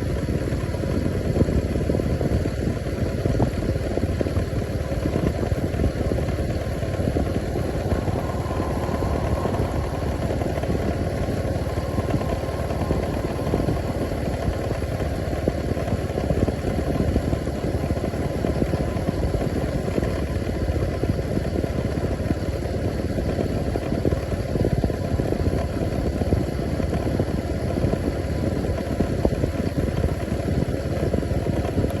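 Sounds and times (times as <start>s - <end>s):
engine rumbling: 3.2s - 22.4s.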